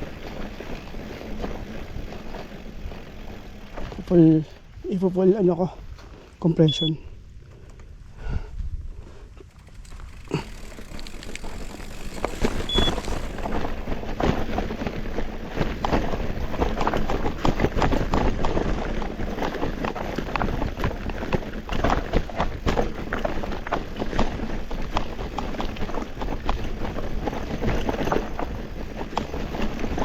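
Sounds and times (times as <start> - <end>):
bike rattling and knocking: 0.0 - 6.4, 9.1 - 30.0
tyres crunching over stones: 9.4 - 14.5.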